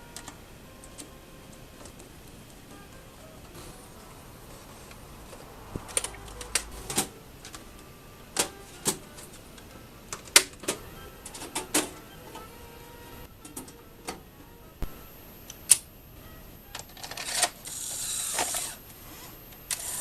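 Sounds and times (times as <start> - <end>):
small hard parts clicking: 16.7 - 18.8.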